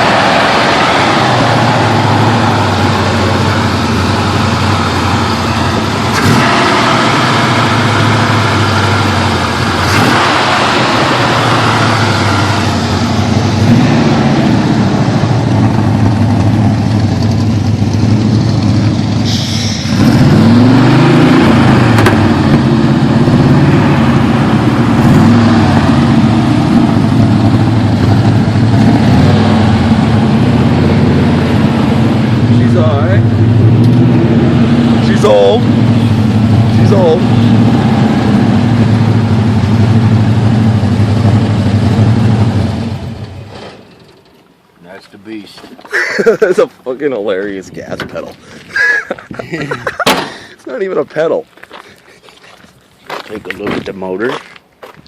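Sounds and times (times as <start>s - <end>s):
pickup truck engine revving: 0.0s - 43.4s.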